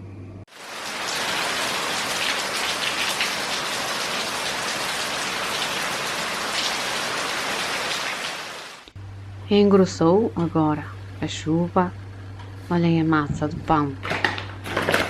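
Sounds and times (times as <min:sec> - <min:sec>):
heavy rain falling: 0:00.5 - 0:08.9.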